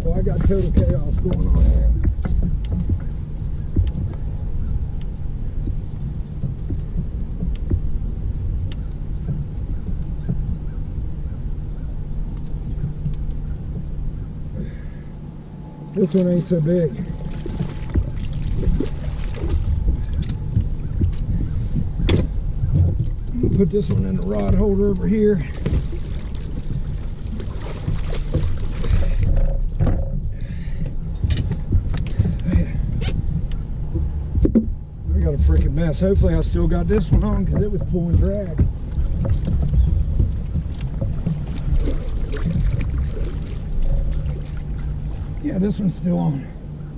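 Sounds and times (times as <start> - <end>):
fishing gear knocking and clattering: 0.0 - 10.8, 17.0 - 45.4
boat motor running: 0.0 - 46.9
steady low rumble: 0.0 - 46.9
light knocks and clicks: 0.2 - 7.9, 35.4 - 42.9.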